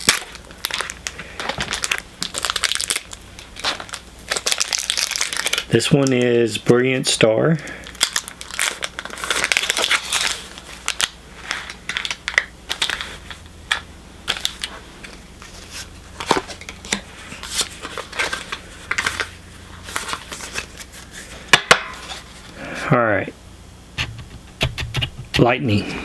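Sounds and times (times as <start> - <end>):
foil wrapper crinkling: 0.0 - 6.6, 7.6 - 22.5
cards clicking and rustling: 11.6 - 19.3.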